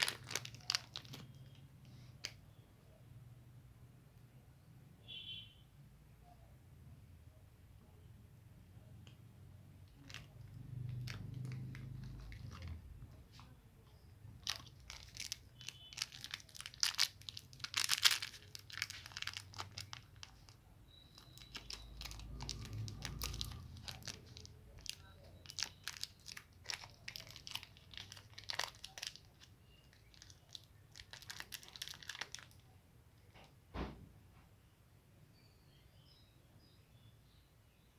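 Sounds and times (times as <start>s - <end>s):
plastic wrapper crinkling: 0.0s - 2.4s, 9.8s - 13.5s, 14.2s - 32.8s.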